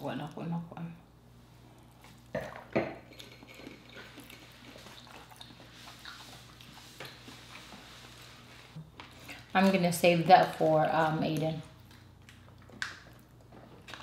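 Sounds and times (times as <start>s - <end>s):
quiet chewing: 3.1s - 7.8s, 11.3s - 14.0s.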